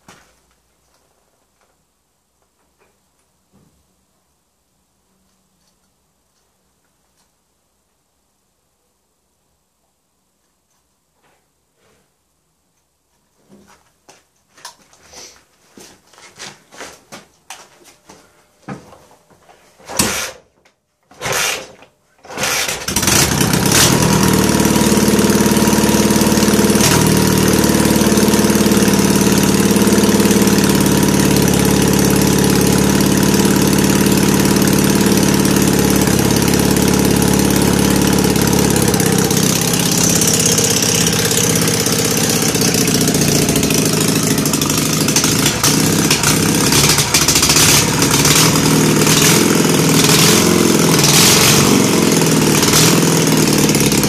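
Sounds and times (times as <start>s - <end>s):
motorcycle engine kick start: 21.2s - 54.0s
motorcycle engine running: 22.8s - 54.0s.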